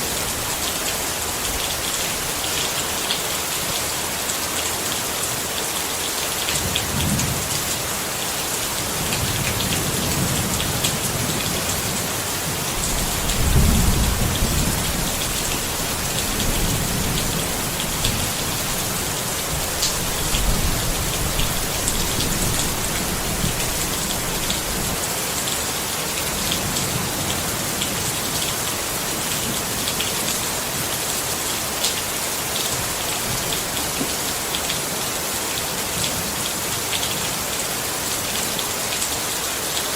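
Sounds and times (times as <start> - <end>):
rain pattering on a tent: 0.0 - 39.9
rolling thunder rumbles: 12.7 - 24.9.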